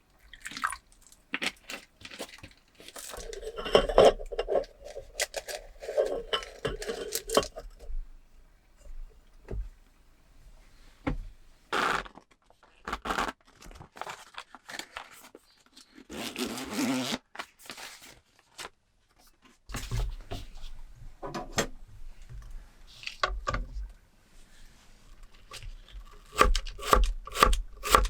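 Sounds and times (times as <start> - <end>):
scraping and rustling handling noises: 1.3 - 26.3.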